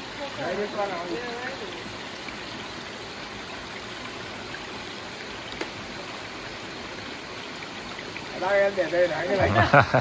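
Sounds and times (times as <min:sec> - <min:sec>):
stream water over rocks: 0:00.0 - 0:10.0.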